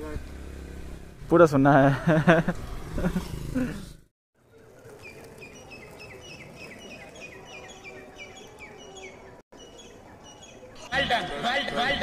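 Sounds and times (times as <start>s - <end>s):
birds chirping: 2.6s - 11.1s.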